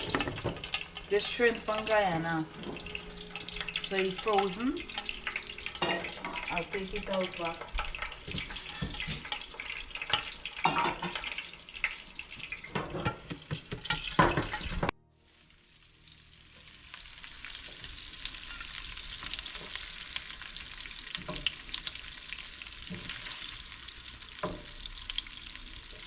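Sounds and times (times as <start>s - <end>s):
utensil scraping a pan: 0.0s - 14.9s
shrimp sizzling in hot oil: 0.0s - 26.0s.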